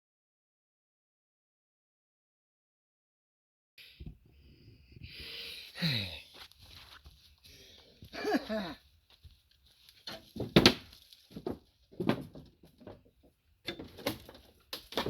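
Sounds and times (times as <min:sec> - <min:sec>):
man breathing heavily: 0:03.8 - 0:06.8, 0:07.4 - 0:08.8
man sighing: 0:05.0 - 0:06.4, 0:07.5 - 0:08.8.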